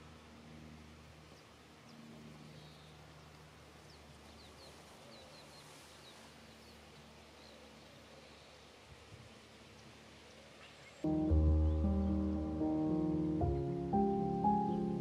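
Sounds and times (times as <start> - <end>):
low steady hum: 0.0 - 15.0
small birds chirping: 1.1 - 15.0.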